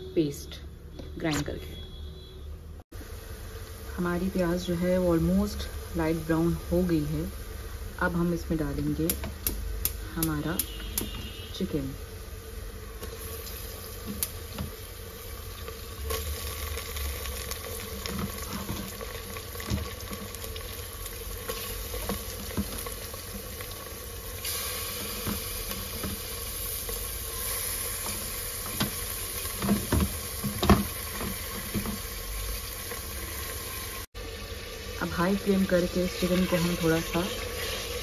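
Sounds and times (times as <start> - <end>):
chicken sizzling in hot fat: 2.9 - 38.0.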